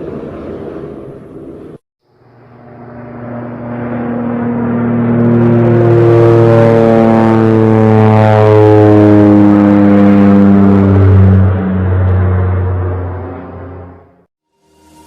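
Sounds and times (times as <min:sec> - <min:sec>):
aircraft engine drone: 0:00.0 - 0:15.0.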